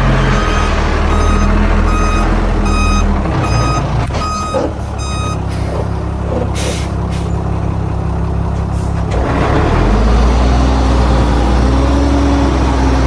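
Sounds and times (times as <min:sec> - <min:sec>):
diesel engine running: 0:00.0 - 0:13.0
reversing alarm beeping: 0:00.2 - 0:06.0.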